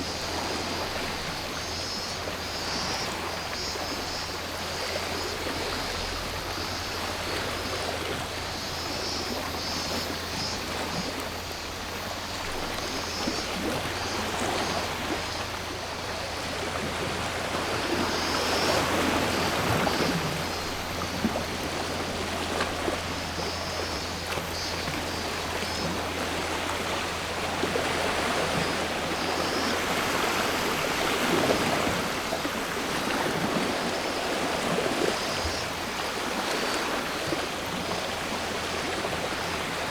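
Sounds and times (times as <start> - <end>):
cicadas buzzing: 0.0 - 39.9
sea waves washing onto shore: 0.0 - 39.9.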